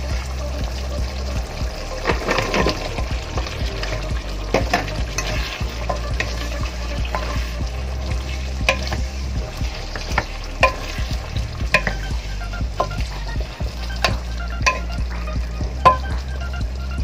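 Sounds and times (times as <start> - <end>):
spatula scraping wok: 0.0 - 16.5
sauce sizzling: 0.0 - 17.0.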